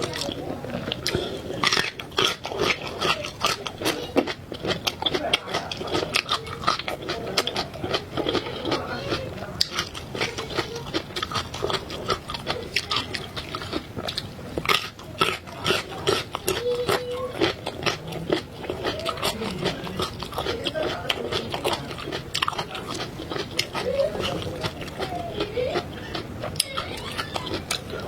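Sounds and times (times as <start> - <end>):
chewing and mouth sounds: 0.0 - 28.0.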